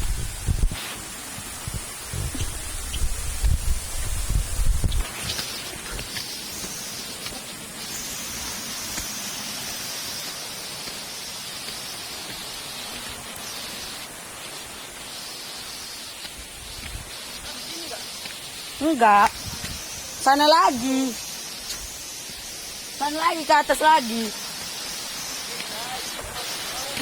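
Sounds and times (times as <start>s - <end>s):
forest ambience hiss: 0.0s - 27.0s.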